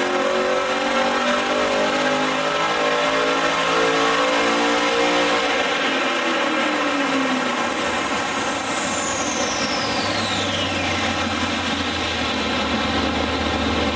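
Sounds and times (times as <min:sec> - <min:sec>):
car engine on dyno: 0:00.0 - 0:13.9
high whine of rollers coasting: 0:04.9 - 0:13.9.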